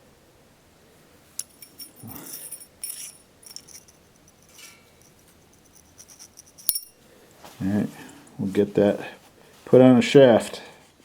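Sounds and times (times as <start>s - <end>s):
metal pieces clinking: 1.4s - 7.0s.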